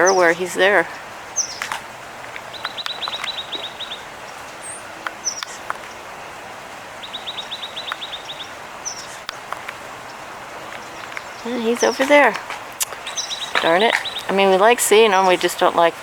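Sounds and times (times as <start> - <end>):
bird chirps: 0.0 - 6.4, 7.0 - 16.0
songbird trilling: 0.0 - 16.0.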